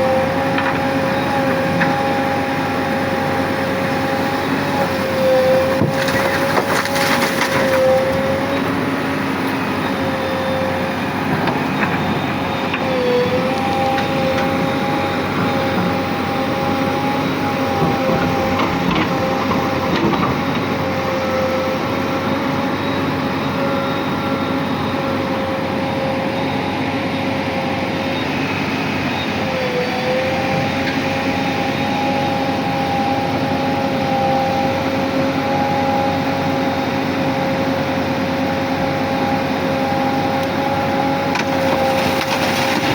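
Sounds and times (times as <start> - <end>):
diesel engine with high whine: 0.0 - 42.9.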